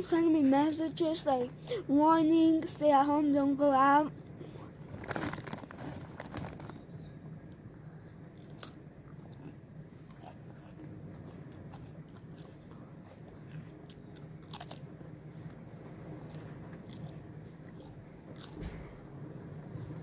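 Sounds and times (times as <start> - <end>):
person crunching chips: 4.9 - 6.8, 8.4 - 9.2, 10.0 - 10.8, 11.7 - 15.1.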